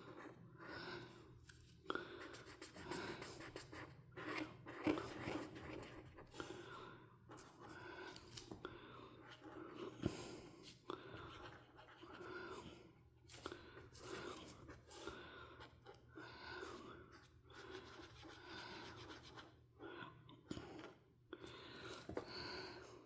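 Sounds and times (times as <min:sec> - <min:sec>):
coloring tool scratching paper: 0:02.1 - 0:06.6, 0:10.6 - 0:12.3, 0:13.3 - 0:16.0, 0:17.1 - 0:19.6.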